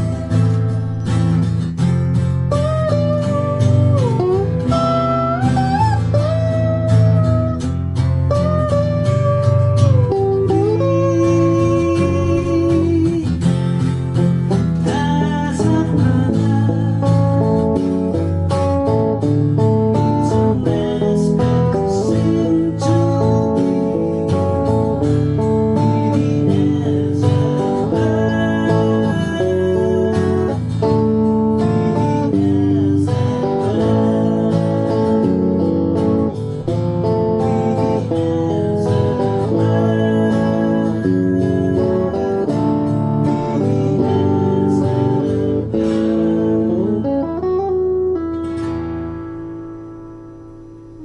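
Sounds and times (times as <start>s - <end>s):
guitar music: 0.0s - 51.0s.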